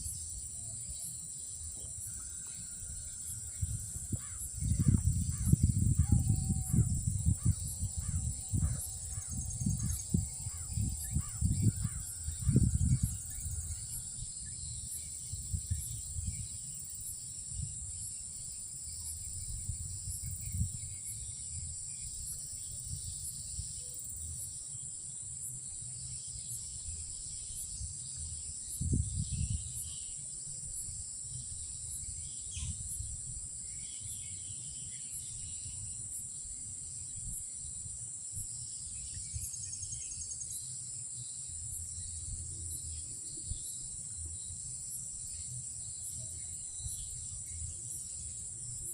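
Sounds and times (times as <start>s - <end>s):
crickets droning: 0.0s - 48.9s.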